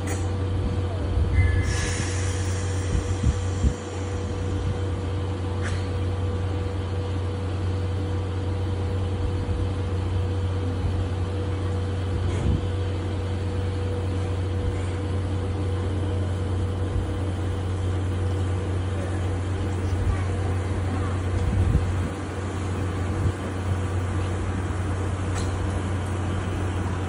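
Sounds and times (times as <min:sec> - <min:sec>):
steam train rolling on track: 0:00.0 - 0:27.0.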